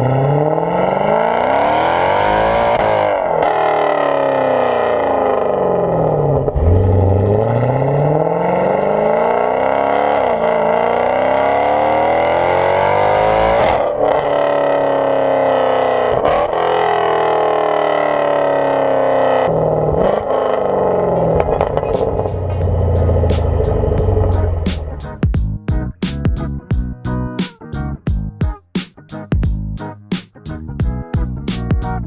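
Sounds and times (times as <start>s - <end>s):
car engine revving hard: 0.0s - 25.2s.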